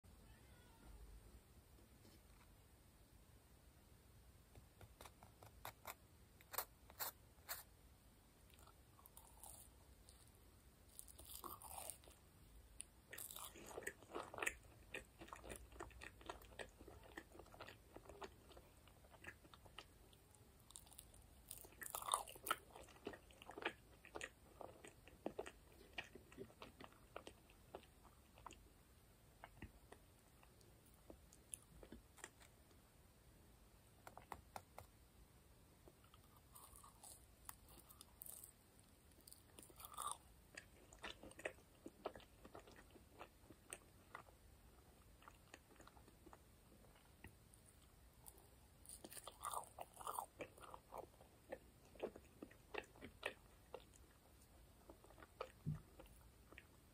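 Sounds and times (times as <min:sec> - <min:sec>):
chewing marshmallows: 0:08.5 - 0:32.6, 0:35.9 - 0:56.9.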